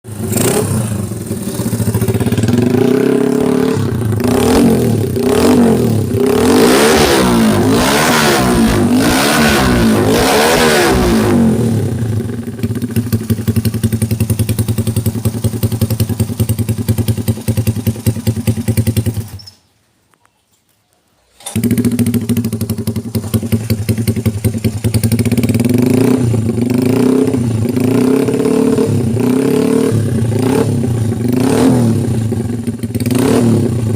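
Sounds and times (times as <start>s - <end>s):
motorcycle engine revving: 0.0s - 19.5s, 21.4s - 33.9s
motorcycle engine idling: 0.1s - 6.4s, 11.4s - 19.5s, 21.5s - 29.3s, 30.0s - 33.9s.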